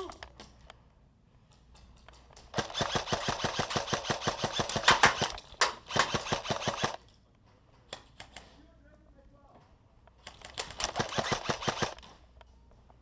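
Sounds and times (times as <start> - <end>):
airsoft gun rapid firing: 2.5 - 7.0, 10.6 - 12.0.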